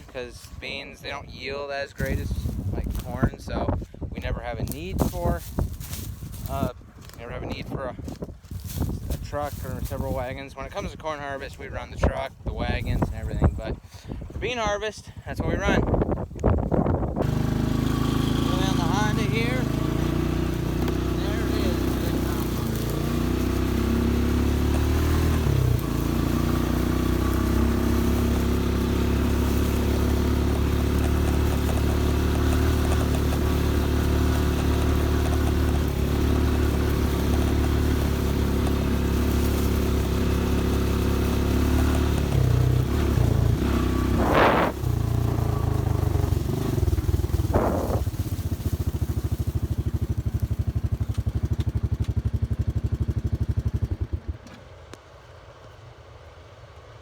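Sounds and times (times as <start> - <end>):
vehicle engine running: 4.6 - 11.0, 17.1 - 55.8.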